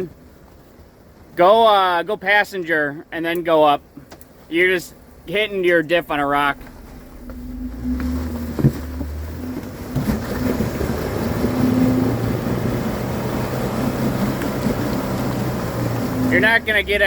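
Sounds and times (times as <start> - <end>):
engine running under load: 5.8 - 17.0.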